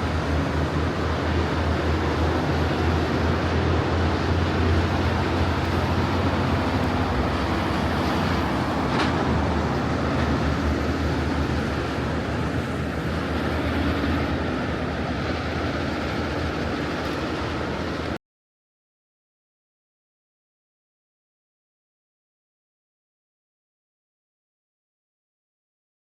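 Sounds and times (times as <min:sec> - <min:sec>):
truck engine and road noise: 0:00.0 - 0:18.2.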